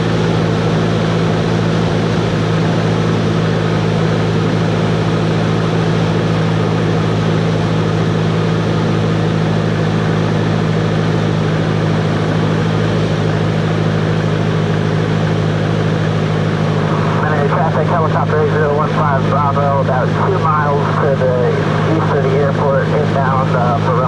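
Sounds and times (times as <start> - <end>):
airplane engine and propeller droning: 0.0 - 24.0.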